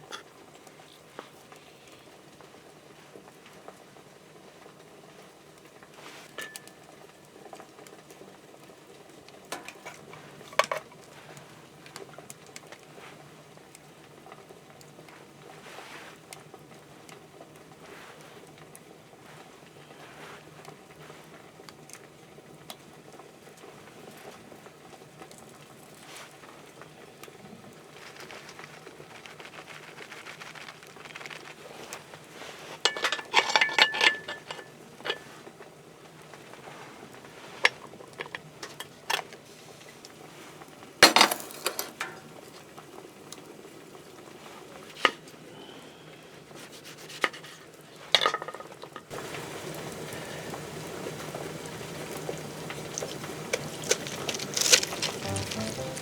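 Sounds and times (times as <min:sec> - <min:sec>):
metal cookware clinking: 0:06.4 - 0:06.8, 0:09.5 - 0:10.8, 0:32.9 - 0:35.3, 0:54.0 - 0:56.0.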